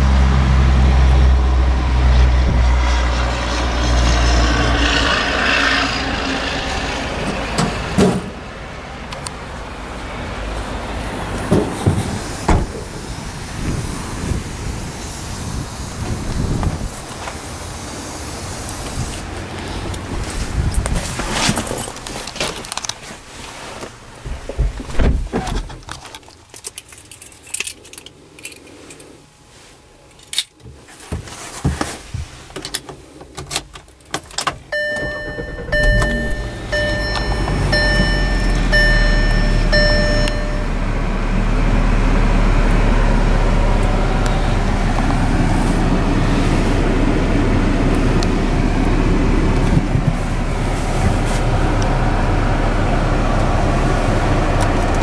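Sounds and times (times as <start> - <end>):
car engine starting and idling: 0.0 - 26.0, 32.2 - 55.0
dashboard warning chimes: 34.7 - 40.8.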